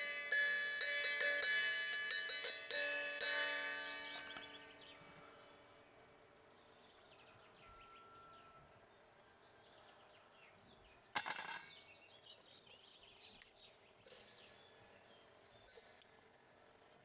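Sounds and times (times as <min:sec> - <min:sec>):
small birds chirping: 0:04.0 - 0:17.0.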